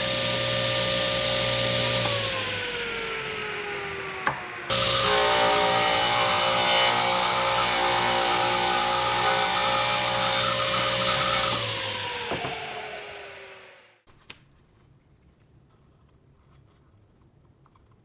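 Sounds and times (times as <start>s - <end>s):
electric power tool running: 0.0s - 14.0s.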